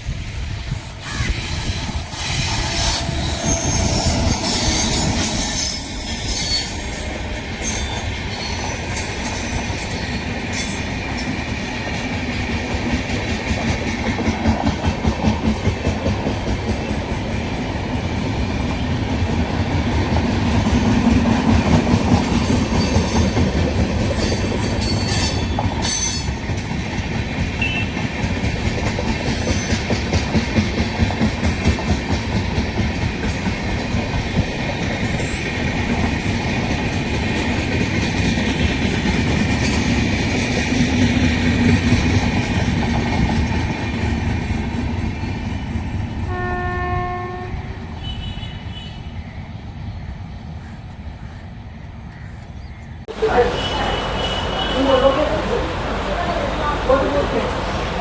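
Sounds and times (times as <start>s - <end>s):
train wheels clattering over rails: 0.0s - 46.3s.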